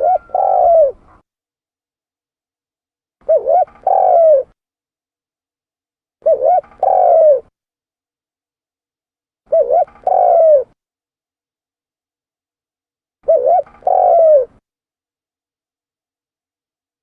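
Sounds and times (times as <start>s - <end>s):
dove cooing: 0.0s - 1.2s, 3.2s - 4.6s, 6.2s - 7.5s, 9.5s - 10.8s, 13.3s - 14.6s.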